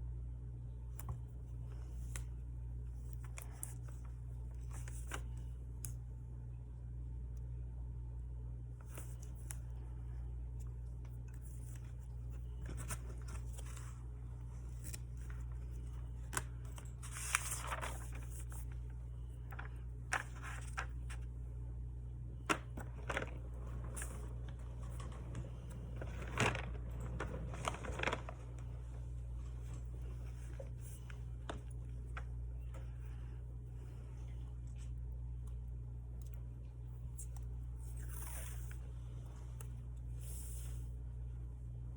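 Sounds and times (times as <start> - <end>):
steady low hum: 0.0 - 41.9
paper tearing and rustling: 12.4 - 18.8, 22.5 - 28.7.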